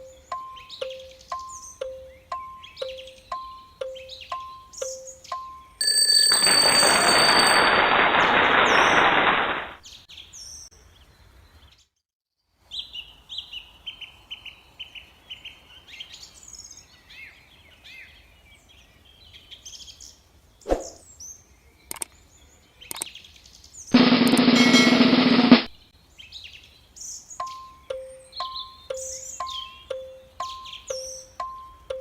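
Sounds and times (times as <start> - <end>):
small birds chirping: 0.0 - 5.8, 12.7 - 23.9, 25.8 - 32.0
sharp clicks: 21.9 - 22.2, 22.9 - 23.1.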